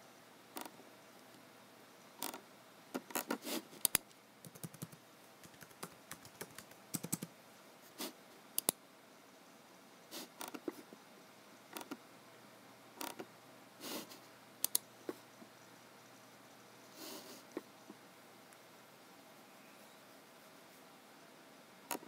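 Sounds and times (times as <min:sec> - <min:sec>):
typing on a keyboard: 0:03.0 - 0:07.3.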